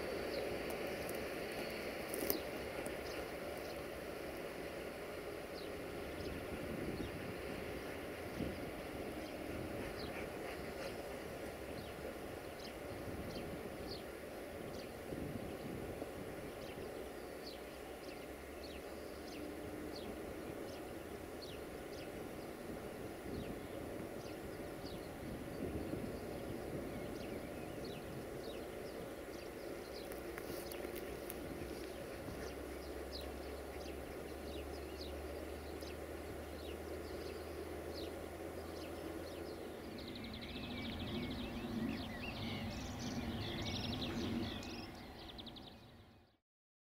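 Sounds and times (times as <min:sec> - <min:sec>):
distant freight train rumble: 0:00.0 - 0:46.0
low steady hum: 0:00.0 - 0:46.2
birds chirping: 0:00.0 - 0:46.4
birdsong with high trills: 0:00.0 - 0:46.4
bird chirping: 0:23.3 - 0:46.4.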